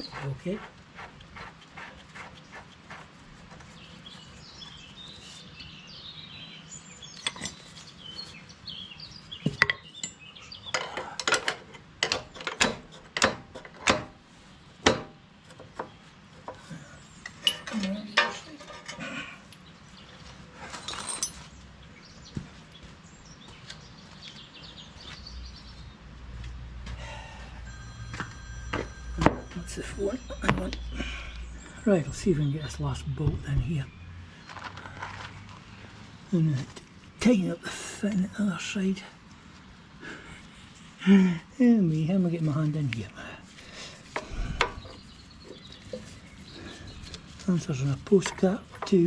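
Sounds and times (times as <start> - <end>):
birds chirping faintly: 0.0 - 12.7, 14.2 - 49.0
metal tools clinking and knocking: 7.2 - 7.7, 9.6 - 14.1, 17.2 - 19.1, 20.6 - 21.6, 27.8 - 31.4.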